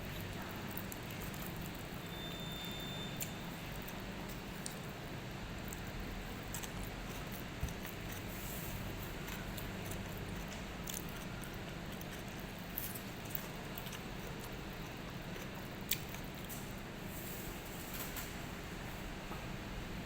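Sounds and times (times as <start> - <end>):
steady low hum: 0.0 - 2.1
person chewing food: 5.6 - 16.5.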